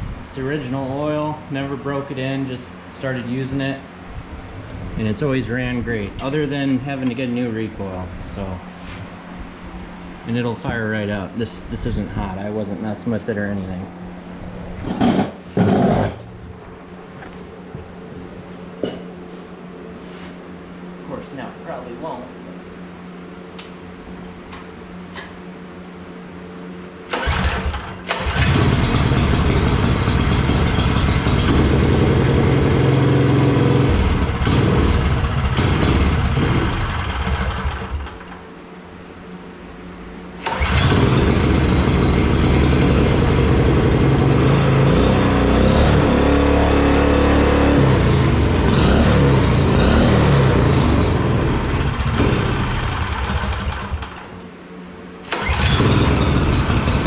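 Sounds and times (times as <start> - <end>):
small engine running: 27.1 - 38.3, 40.4 - 54.3, 55.3 - 57.0.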